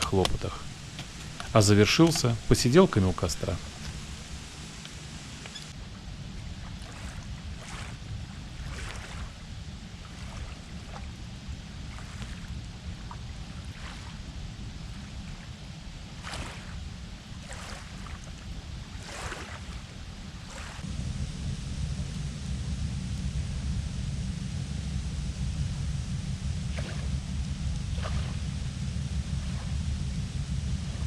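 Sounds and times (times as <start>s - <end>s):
campfire crackling and popping: 0.0s - 5.8s
low rumble: 0.0s - 19.0s, 19.8s - 31.0s.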